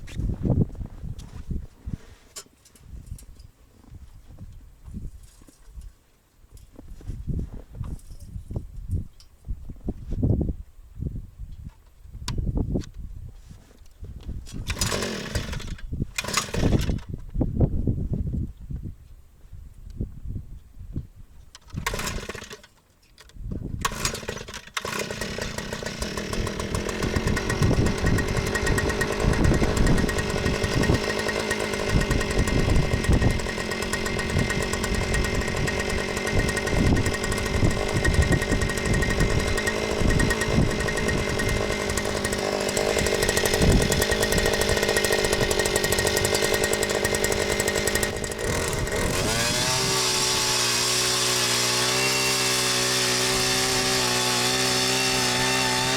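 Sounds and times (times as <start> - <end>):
small gasoline engine revving: 14.6 - 17.0, 21.8 - 22.6, 23.8 - 55.9.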